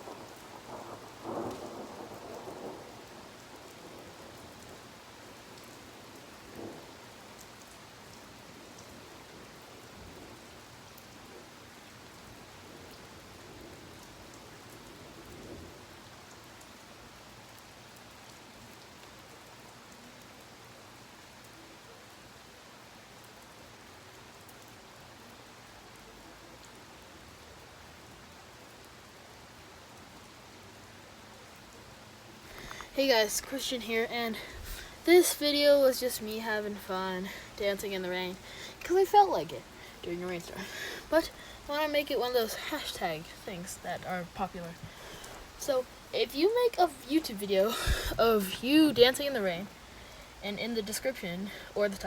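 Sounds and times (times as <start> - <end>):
thunder rolling: 0.0 - 4.9, 32.5 - 49.5
steady rain falling: 0.0 - 52.0.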